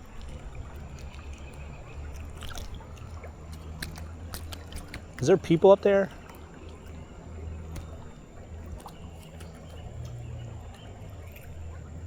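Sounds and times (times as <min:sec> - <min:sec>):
faint small clicks: 0:00.0 - 0:05.3
creek water trickling: 0:00.0 - 0:12.0.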